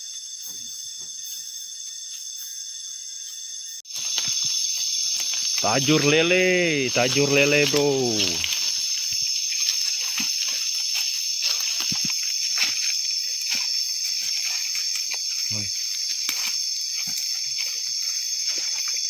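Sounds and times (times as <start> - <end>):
night insect chorus: 0.0 - 19.0
small clicks and rustles: 8.4 - 19.0.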